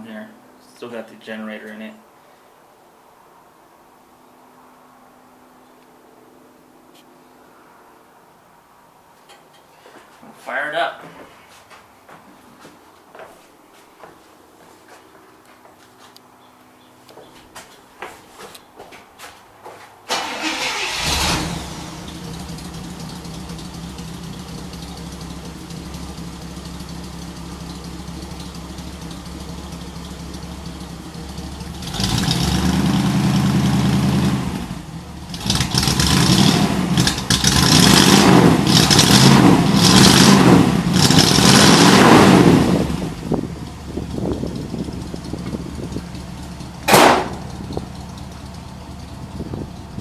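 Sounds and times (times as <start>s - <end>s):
car engine starting and revving: 20.1s - 50.0s.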